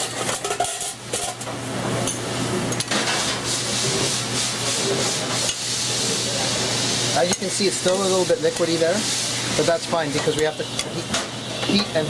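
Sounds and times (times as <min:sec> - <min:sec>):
sauce sizzling in a metal pan: 0:02.9 - 0:12.0.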